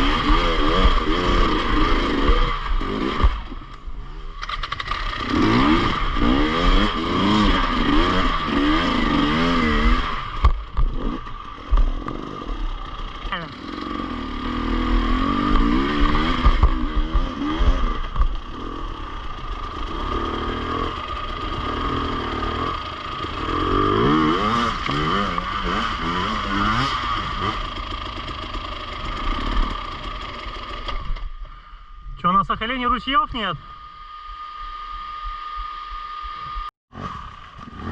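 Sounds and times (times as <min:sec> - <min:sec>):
motorcycle engine revving: 0:00.0 - 0:31.7, 0:33.4 - 0:37.9.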